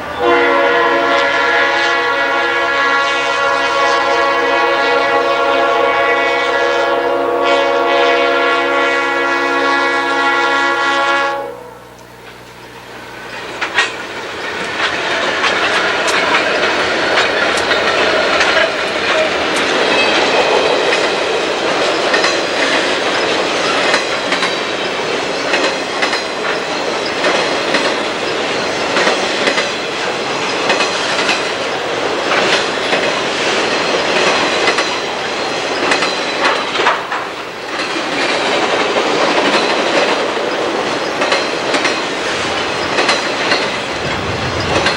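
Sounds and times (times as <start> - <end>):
train wheels clicking over rail joints: 11.7 - 44.9
train wheel squeal: 11.8 - 31.7, 32.3 - 44.9.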